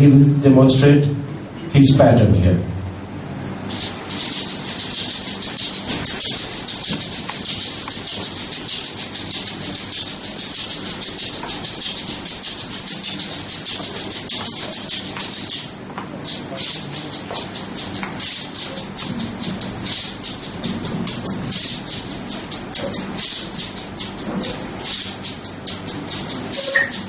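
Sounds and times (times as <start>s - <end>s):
maracas shaking: 3.7s - 27.0s.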